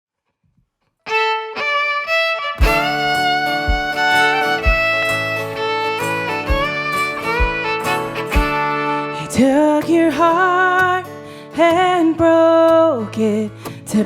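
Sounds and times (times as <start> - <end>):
guitar: 1.0 - 14.0
fiddle: 1.1 - 10.5
low beat: 2.6 - 8.7.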